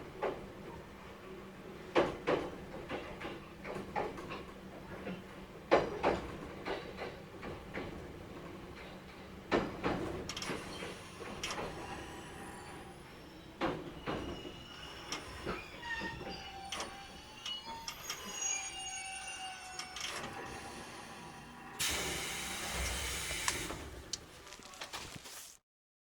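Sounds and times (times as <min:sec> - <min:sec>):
electric train rolling slowly: 0:00.0 - 0:24.6
high brake squeals: 0:10.4 - 0:23.9.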